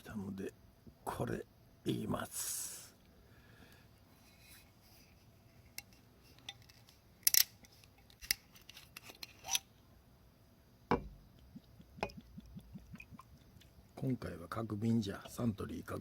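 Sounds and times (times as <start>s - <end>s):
glass and bottle clinking: 10.9s - 11.2s, 12.0s - 13.2s.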